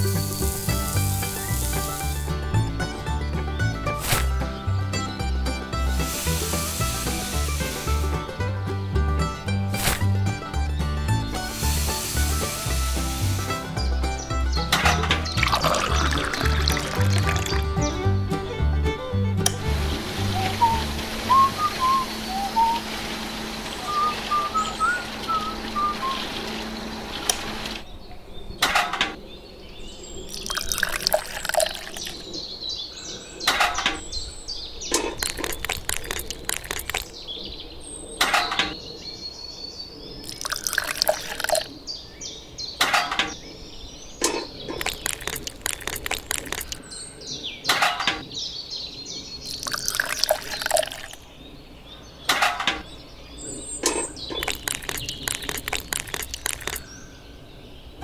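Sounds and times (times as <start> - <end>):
steady hiss: 0.0 - 3.1, 3.9 - 8.6, 10.8 - 17.5
water splashes: 0.0 - 10.4, 11.3 - 18.0
birds chirping: 0.0 - 58.0.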